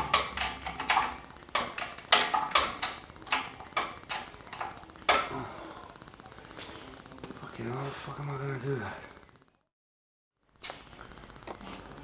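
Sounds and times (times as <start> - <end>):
metallic clicks and knocks: 0.0 - 5.3.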